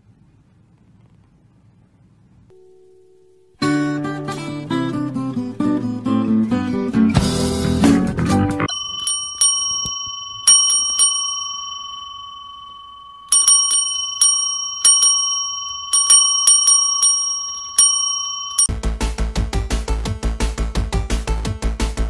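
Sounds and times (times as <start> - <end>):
small metal bell ringing: 8.7 - 18.7.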